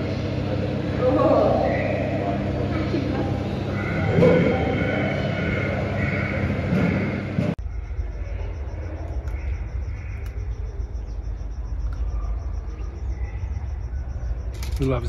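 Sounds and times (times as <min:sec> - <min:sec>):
steady low rumble: 0:01.8 - 0:15.0
high-pitched insect chirping: 0:07.6 - 0:15.0.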